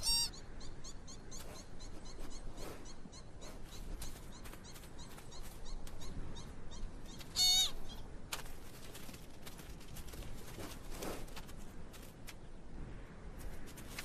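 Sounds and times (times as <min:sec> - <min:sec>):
loud squeaking call: 0:00.0 - 0:00.4, 0:07.4 - 0:07.8.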